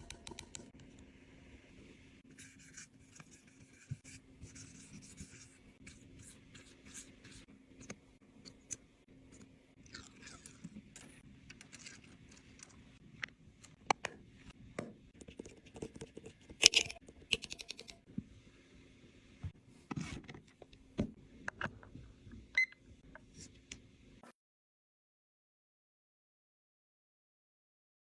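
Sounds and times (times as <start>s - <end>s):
small tools clicking and tapping: 15.2s - 18.0s.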